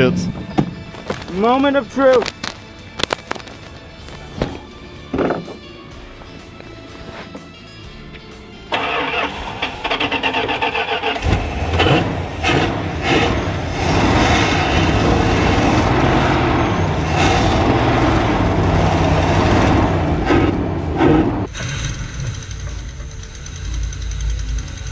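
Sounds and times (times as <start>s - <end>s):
engine cranking on starter: 8.7s - 24.9s
engine running with uneven revs: 8.7s - 24.9s.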